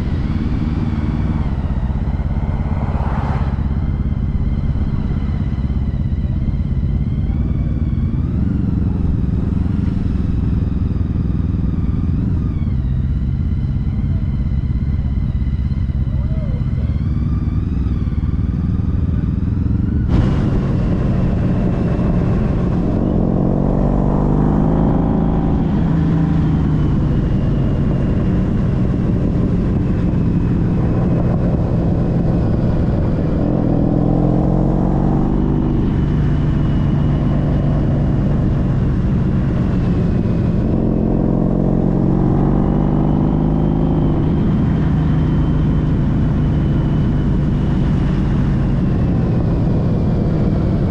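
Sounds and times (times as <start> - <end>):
wind noise: 0.0 - 13.0
motorcycle engine accelerating: 0.0 - 50.9.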